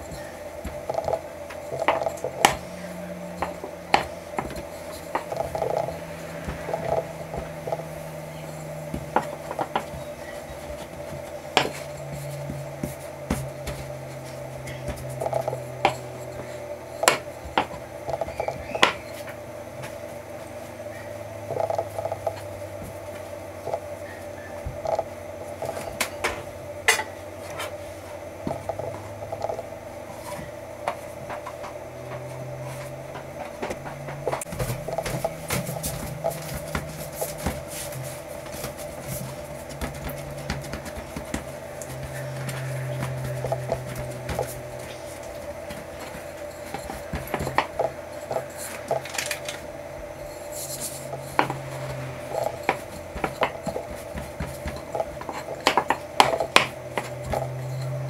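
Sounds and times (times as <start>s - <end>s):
hands patting dough: 0.0s - 58.0s
steady hum: 0.0s - 58.0s
rolling pin knocking on steel worktop: 0.1s - 2.7s, 14.8s - 19.1s.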